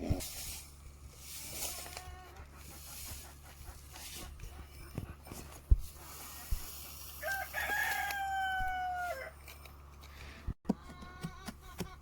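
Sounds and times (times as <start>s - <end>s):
rooster crowing: 7.2s - 9.4s.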